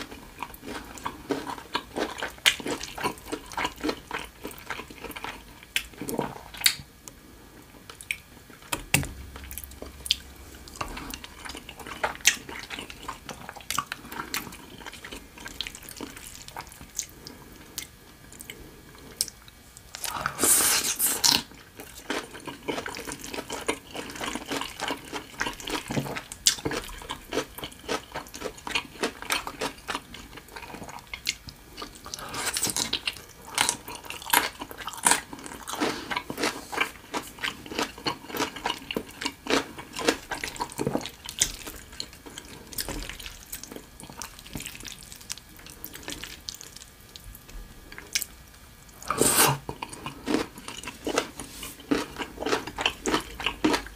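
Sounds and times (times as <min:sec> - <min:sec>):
wet chewing sounds: 0:00.0 - 0:06.8, 0:07.9 - 0:53.9.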